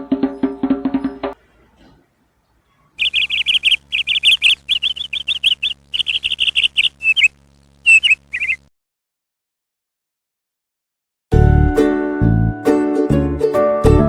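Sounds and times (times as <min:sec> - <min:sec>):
small songbird chirping: 0:02.7 - 0:08.7.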